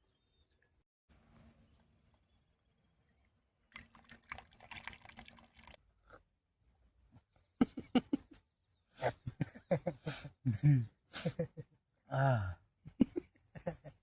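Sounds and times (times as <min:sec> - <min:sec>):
tea pouring into cups: 0:03.7 - 0:05.8.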